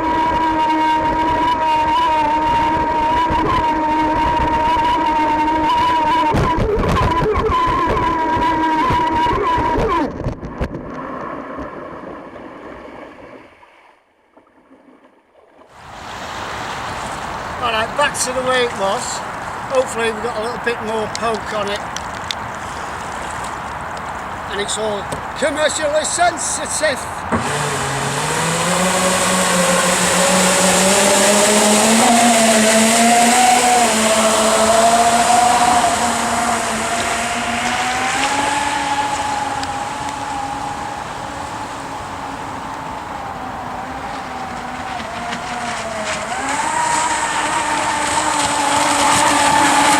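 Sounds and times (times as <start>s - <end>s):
rushing water: 0.0s - 13.8s, 14.6s - 49.9s
jet-propelled kayak humming: 0.0s - 49.9s
constant hiss: 15.8s - 31.9s
jet engine whine: 27.2s - 49.9s.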